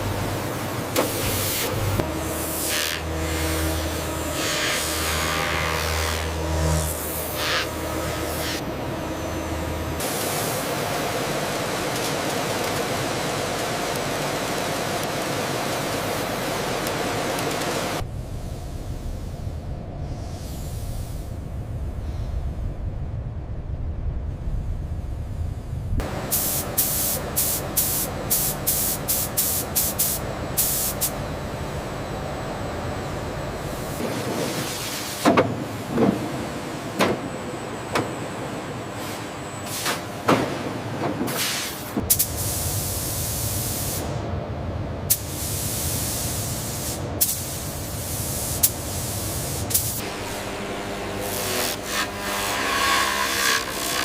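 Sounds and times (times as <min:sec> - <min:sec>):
machine hum: 0:00.0 - 0:54.0
hissing spray: 0:26.3 - 0:31.2
spraying hiss bursts: 0:26.3 - 0:31.2, 0:41.4 - 0:44.2, 0:45.1 - 0:50.0.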